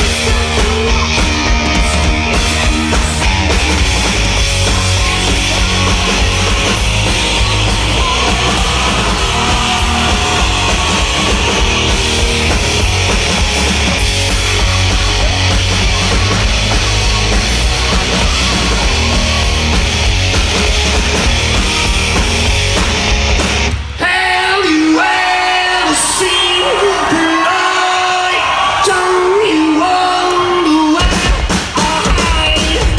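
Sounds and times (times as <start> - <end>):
live rock band playing: 0.0 - 32.9.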